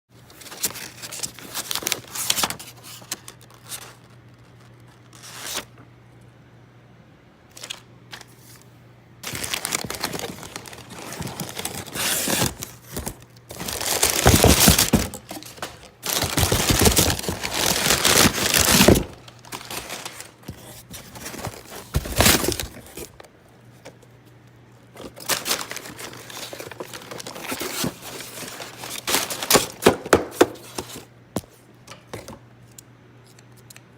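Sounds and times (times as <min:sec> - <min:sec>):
faint steady hum: 0:00.1 - 0:33.9
packaging crinkling and tearing: 0:00.3 - 0:05.7, 0:07.5 - 0:08.6, 0:09.2 - 0:23.3, 0:25.0 - 0:31.1.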